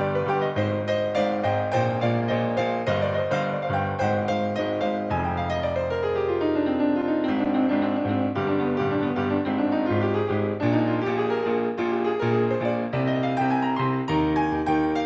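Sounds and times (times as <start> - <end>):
solo piano music: 0.0 - 15.0.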